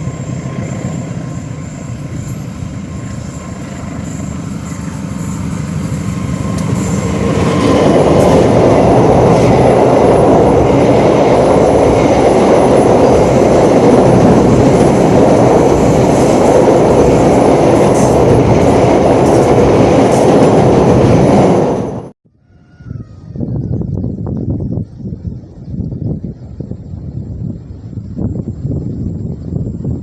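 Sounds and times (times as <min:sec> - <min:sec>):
train wheels rumbling on rails: 0:00.0 - 0:22.2.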